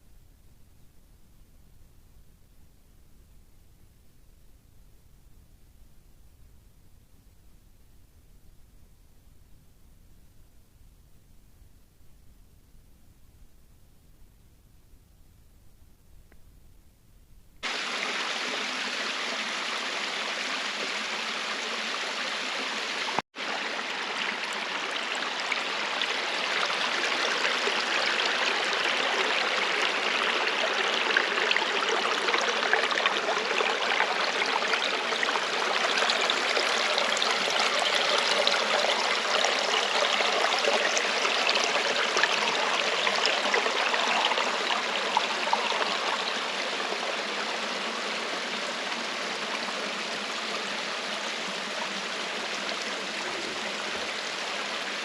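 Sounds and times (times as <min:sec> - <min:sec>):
flowing water rushing: 0:17.6 - 0:55.0.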